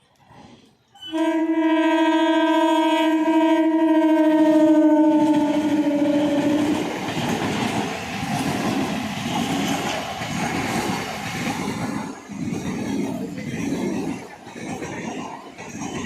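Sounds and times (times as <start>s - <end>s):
train wheels rumbling on track: 0.1s - 16.0s
train horn: 1.0s - 7.1s.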